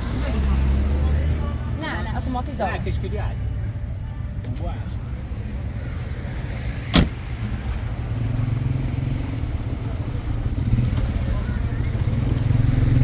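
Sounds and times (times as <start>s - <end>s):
car rumble: 0.0s - 13.0s
sharp knock: 6.9s - 7.2s.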